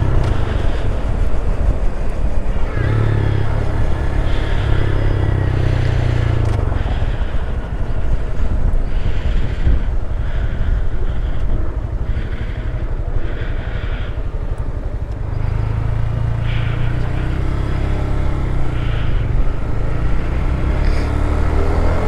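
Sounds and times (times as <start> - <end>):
wind rushing across microphone: 0.0 - 15.2
motorcycle engine running: 0.0 - 22.0.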